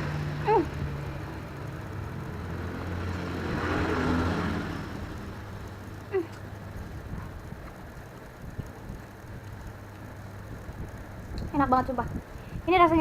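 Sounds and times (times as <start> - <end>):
vehicle passing: 0.0 - 7.7
road traffic hum: 0.0 - 13.0.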